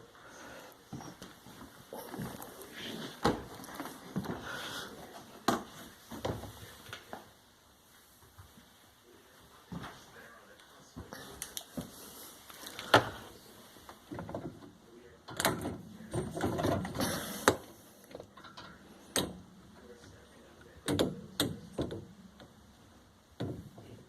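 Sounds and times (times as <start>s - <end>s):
rustling and clattering: 0.9s - 7.3s, 11.7s - 20.2s
handling clicks and knocks: 14.1s - 22.6s.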